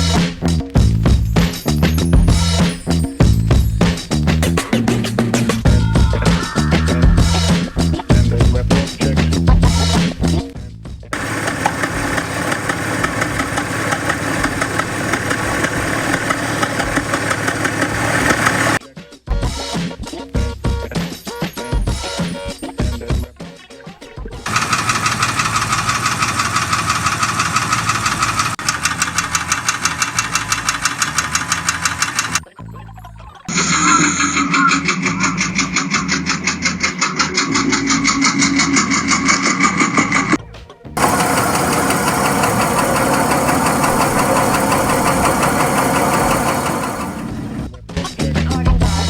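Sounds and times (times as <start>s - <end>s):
fast even beat: 0.0s - 10.1s
car engine running: 11.2s - 18.8s, 24.4s - 32.4s, 41.0s - 47.7s
metallic engine ticking knock: 11.2s - 18.8s, 24.5s - 32.4s, 41.0s - 47.6s.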